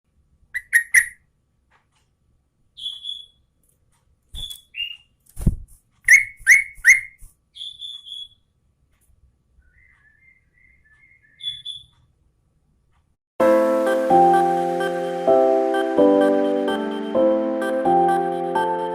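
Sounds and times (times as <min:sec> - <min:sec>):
bird sharp chirps: 0:00.6 - 0:01.2, 0:02.8 - 0:03.5, 0:04.3 - 0:05.2, 0:06.0 - 0:08.5, 0:09.6 - 0:12.1
faint bird twittering: 0:00.6 - 0:01.2, 0:02.7 - 0:03.5, 0:04.3 - 0:05.2, 0:06.0 - 0:08.5, 0:09.6 - 0:12.1.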